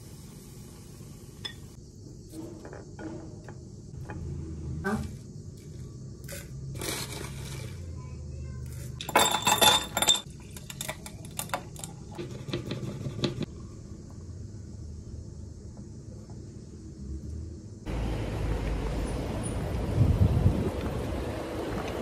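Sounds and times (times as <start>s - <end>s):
dishes and cutlery clattering: 9.0s - 11.9s.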